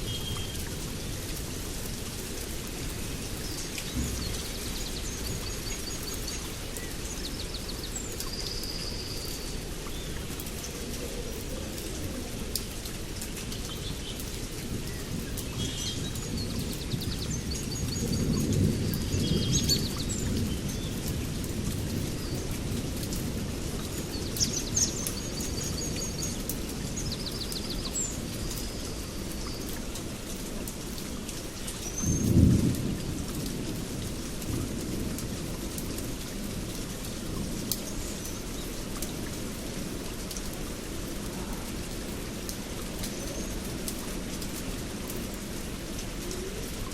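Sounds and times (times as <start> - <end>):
steady rain: 0.0 - 46.9
thunder rumbling: 32.0 - 37.7.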